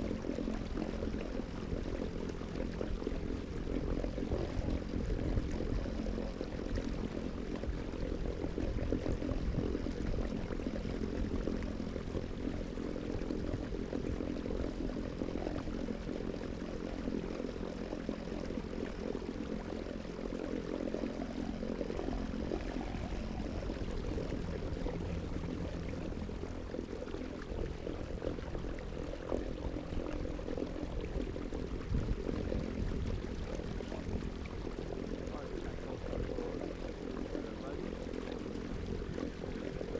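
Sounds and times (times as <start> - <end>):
water noise: 0.0 - 39.9
mechanical hum: 13.4 - 35.2
low rumble: 20.8 - 34.6.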